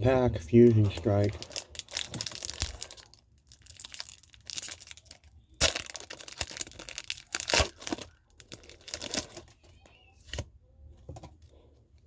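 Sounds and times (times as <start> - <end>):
foil card pack crinkling and tearing: 0.6 - 9.5.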